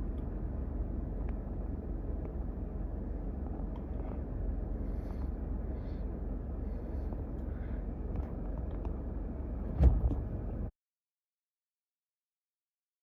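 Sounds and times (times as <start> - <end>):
low rumbling: 0.0 - 10.7
loud thump: 9.7 - 10.3.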